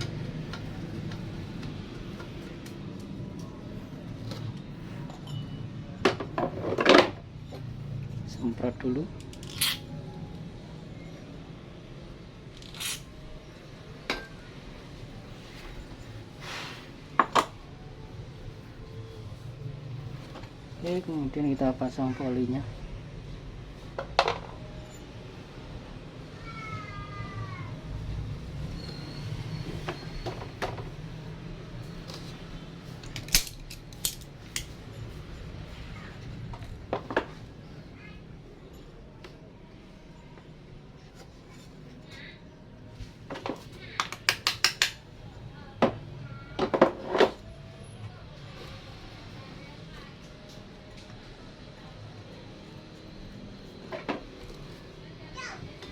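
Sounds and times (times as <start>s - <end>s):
metal clinks and taps of tools: 5.0s - 7.8s, 33.0s - 35.5s.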